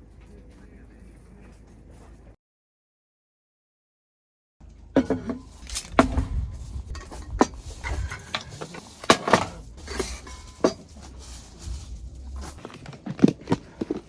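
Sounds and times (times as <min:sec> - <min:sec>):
camp kitchen gear clinking: 0:04.6 - 0:14.0
wind rumble on microphone: 0:05.6 - 0:08.5.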